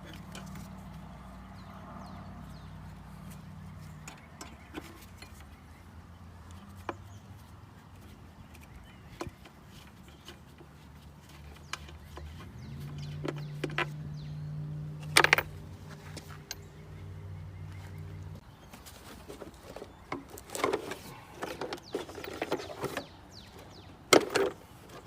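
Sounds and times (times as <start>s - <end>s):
hand tools clicking and clanking: 0.0s - 1.7s, 2.6s - 25.0s.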